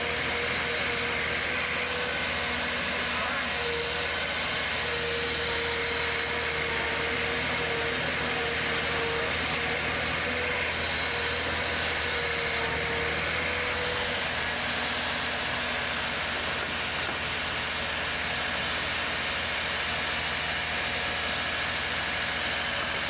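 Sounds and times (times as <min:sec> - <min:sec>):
heavy vehicle engine running: 0:00.0 - 0:23.0.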